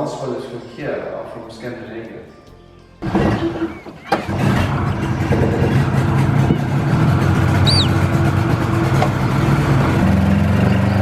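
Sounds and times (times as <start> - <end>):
engine running: 3.0 - 11.0
bird chirp: 7.6 - 8.1.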